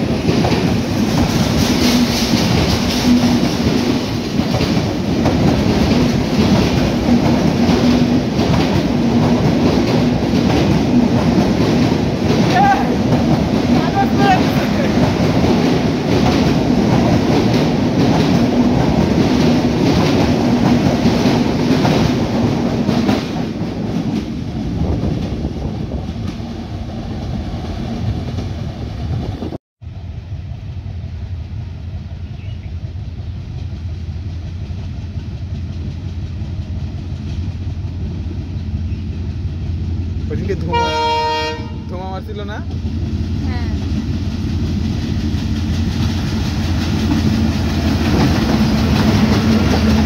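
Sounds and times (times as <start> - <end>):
train wheels clattering: 0.0 - 26.5, 42.4 - 50.0
approaching train drone: 0.0 - 50.0.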